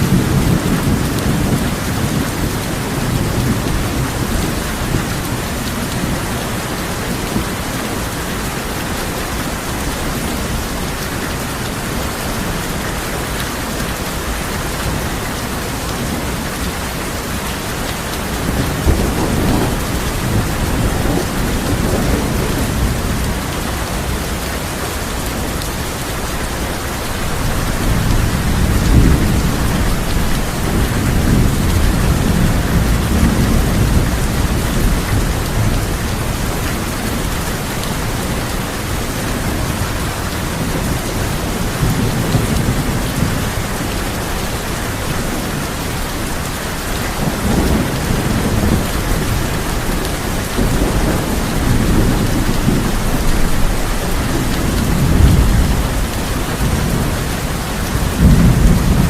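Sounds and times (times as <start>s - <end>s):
heavy rain on a tin roof: 0.0s - 59.0s
rolling thunder: 18.3s - 25.3s, 26.7s - 43.9s, 47.1s - 59.0s.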